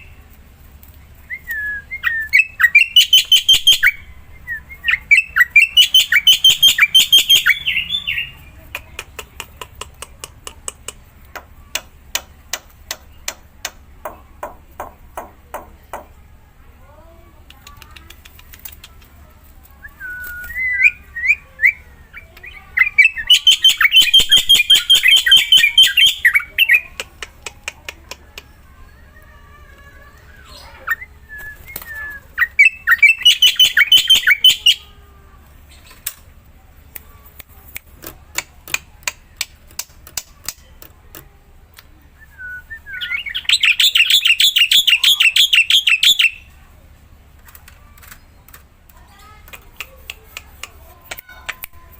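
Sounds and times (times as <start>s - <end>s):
bird chattering song: 1.4s - 16.1s, 19.8s - 29.1s, 30.2s - 34.9s, 42.3s - 46.6s
scattered clicks: 17.4s - 19.2s, 47.4s - 51.8s.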